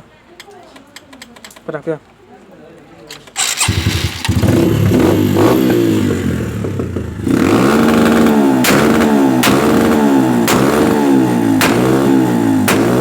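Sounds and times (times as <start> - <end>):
motorcycle engine revving: 3.4 - 13.0
sharp crack: 7.6 - 13.0.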